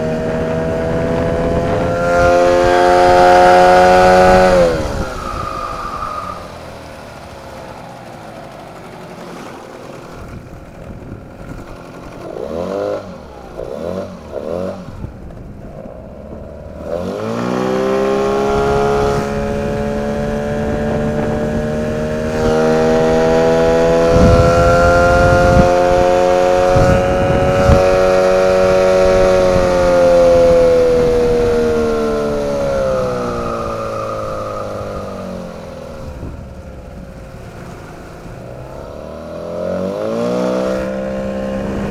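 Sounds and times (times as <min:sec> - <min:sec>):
outboard motor revving: 0:00.0 - 0:41.9
strong whistling tone: 0:01.6 - 0:07.2, 0:30.4 - 0:36.5.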